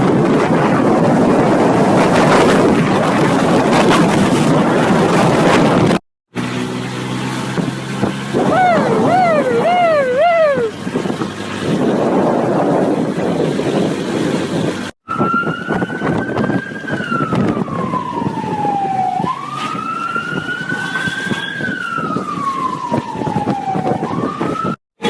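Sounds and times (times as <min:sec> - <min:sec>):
rushing engine and wind: 0:00.0 - 0:24.8
police siren wailing: 0:08.4 - 0:10.8, 0:15.1 - 0:24.8.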